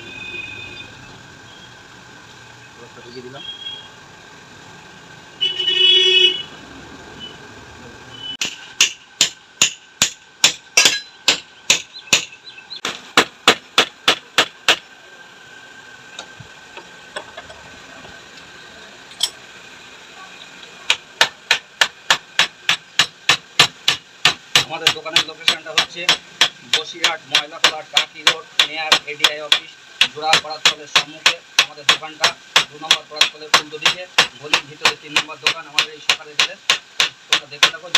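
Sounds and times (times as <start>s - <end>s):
loud high-pitched whine: 0.0s - 8.4s.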